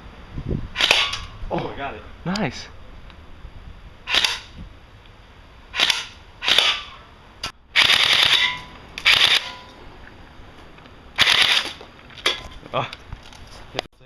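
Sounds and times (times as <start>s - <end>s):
airsoft gun shots: 0.8s - 1.3s, 5.8s - 7.0s.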